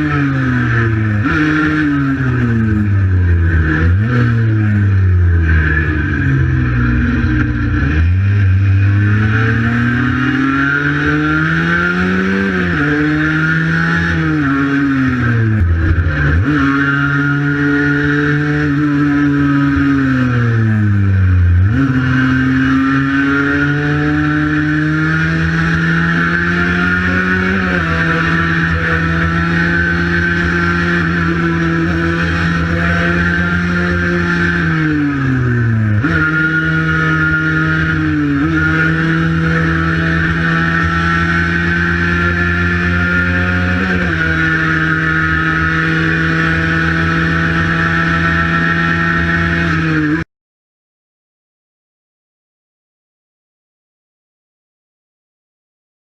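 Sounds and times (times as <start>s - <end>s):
two-stroke motorcycle engine running: 23.6s - 50.2s.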